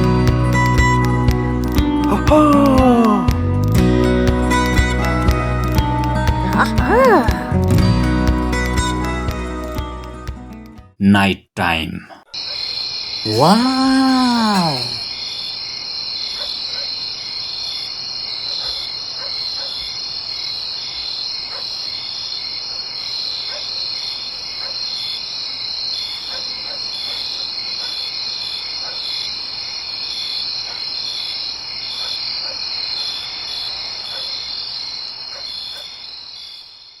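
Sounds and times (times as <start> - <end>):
crickets chirping: 12.4 - 37.0.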